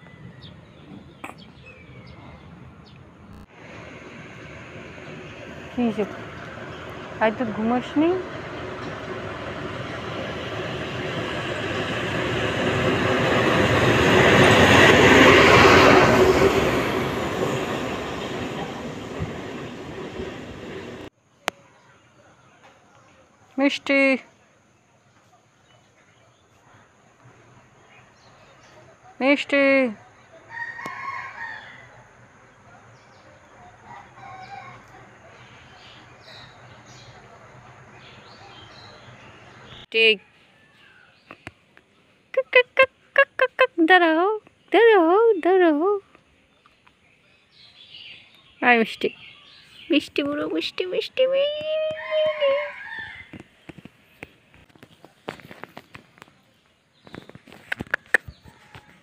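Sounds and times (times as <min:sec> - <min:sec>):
small birds chirping: 0:00.0 - 0:03.5, 0:44.4 - 0:58.8
passing vehicle rumble: 0:00.0 - 0:21.1
rooster crowing: 0:30.5 - 0:32.1, 0:33.7 - 0:35.2, 0:51.9 - 0:53.4.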